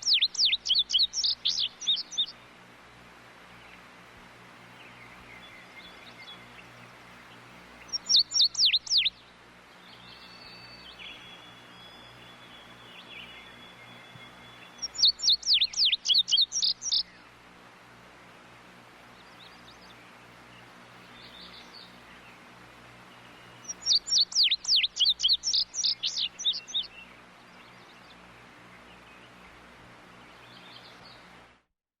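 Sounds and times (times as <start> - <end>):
bird sharp down-slurred chirps: 0.0 - 2.3, 7.9 - 9.1, 10.2 - 17.1, 23.5 - 26.9.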